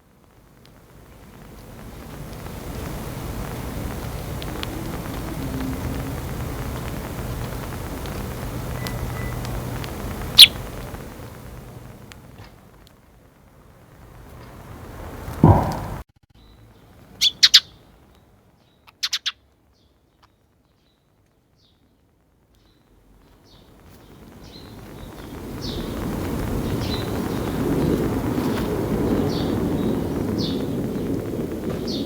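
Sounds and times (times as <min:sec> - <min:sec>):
faint ticks: 0:00.2 - 0:13.0
sparrow chirping: 0:08.7 - 0:09.7, 0:10.3 - 0:10.8, 0:16.4 - 0:21.0, 0:23.4 - 0:32.0.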